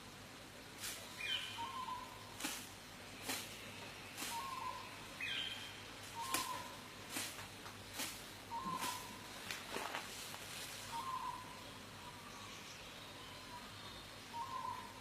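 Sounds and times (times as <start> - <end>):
bird calling: 1.1 - 2.3, 3.2 - 6.9, 8.4 - 15.0.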